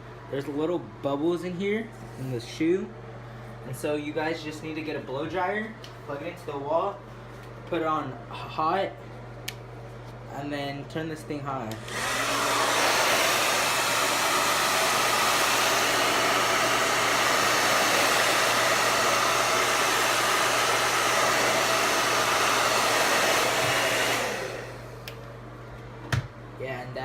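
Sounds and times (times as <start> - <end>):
blow dryer running: 11.4 - 26.4.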